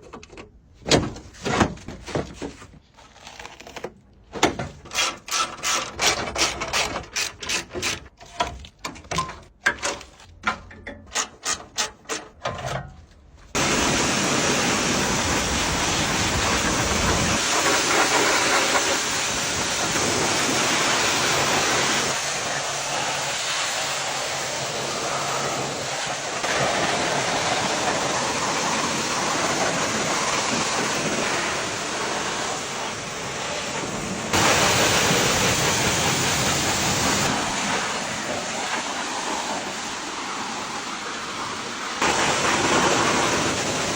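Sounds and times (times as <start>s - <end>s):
sharp clicks and knocks: 3.8s - 13.0s
high-pressure water spray hiss: 13.6s - 43.9s.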